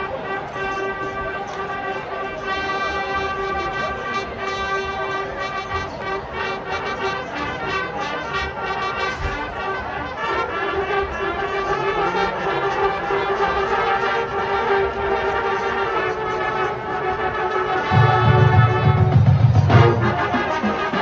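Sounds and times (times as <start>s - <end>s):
marching band brass playing: 0.0s - 21.0s.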